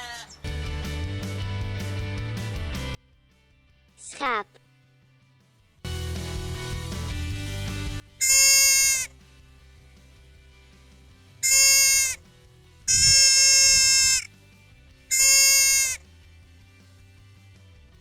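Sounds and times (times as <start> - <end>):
sheep bleating: 0.0 - 0.4, 8.2 - 9.1, 11.4 - 12.2, 12.9 - 14.3, 15.1 - 16.1.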